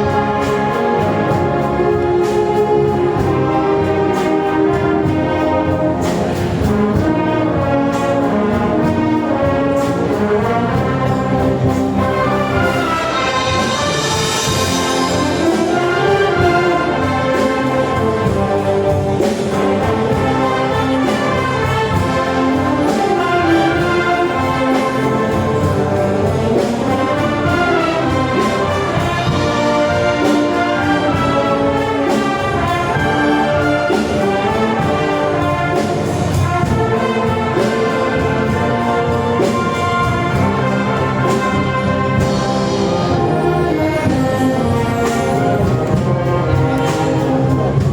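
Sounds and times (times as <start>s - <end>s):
brass band playing: 0.0s - 47.9s
steady percussion beat: 0.0s - 47.9s
trumpets and trombones melody: 0.0s - 47.9s.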